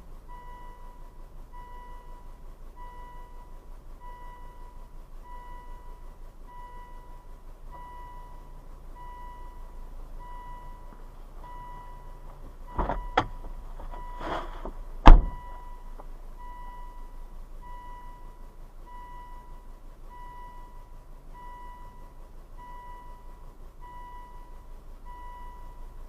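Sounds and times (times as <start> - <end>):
car warning chime beeping: 0.2 - 26.0
sharp thumps: 12.7 - 15.5
short rustle: 13.7 - 14.8.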